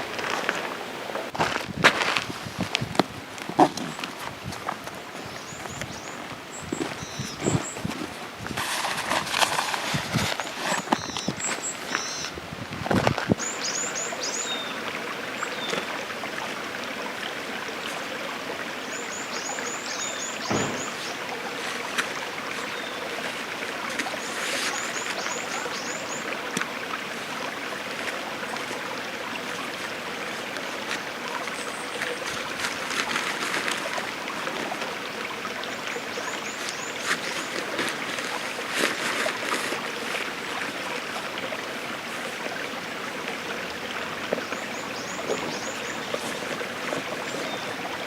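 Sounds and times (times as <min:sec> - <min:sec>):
stream running: 0:00.0 - 0:48.0.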